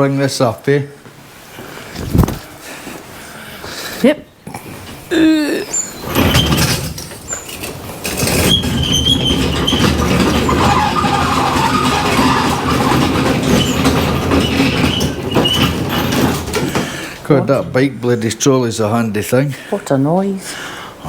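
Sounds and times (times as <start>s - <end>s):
trolley rolling and rattling: 4.8s - 17.7s
short high squeaks: 5.5s - 16.4s.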